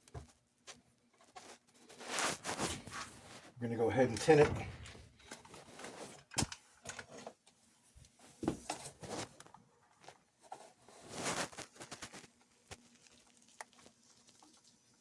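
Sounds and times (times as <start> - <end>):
hands handling tools: 2.2 - 7.0.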